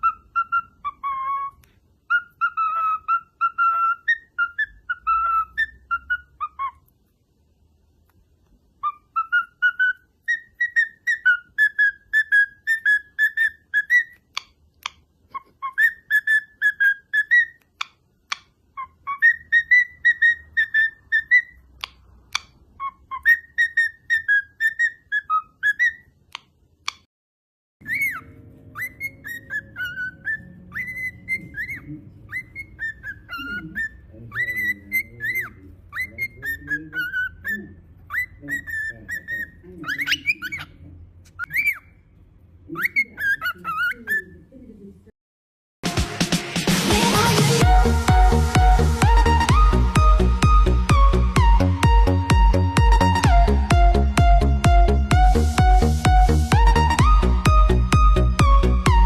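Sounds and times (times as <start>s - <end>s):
bird whistling a tune: 0.0s - 6.8s, 8.8s - 14.3s, 15.4s - 17.6s, 18.8s - 21.6s, 22.8s - 26.1s, 27.8s - 40.7s, 41.4s - 41.9s, 47.6s - 54.4s, 55.1s - 59.0s.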